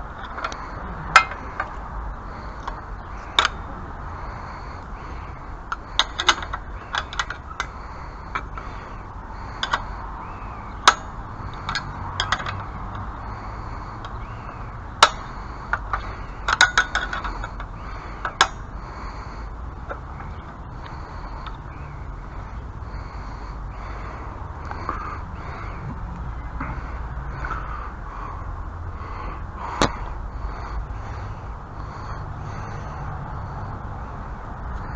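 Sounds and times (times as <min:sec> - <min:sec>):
low background rumble: 0:00.0 - 0:34.9
hand tools clicking and knocking: 0:00.2 - 0:01.9, 0:02.5 - 0:03.7, 0:05.7 - 0:14.2, 0:14.9 - 0:18.6.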